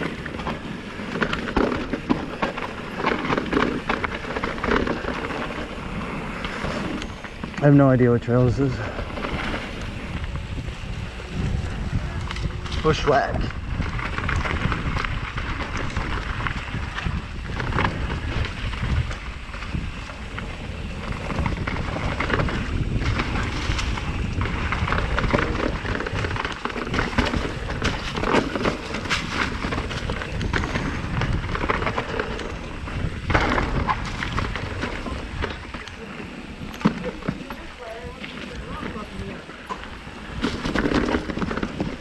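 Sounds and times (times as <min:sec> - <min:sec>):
wind buffeting microphone: 0:00.0 - 0:42.0
tyres rumbling over rock: 0:24.6 - 0:35.8.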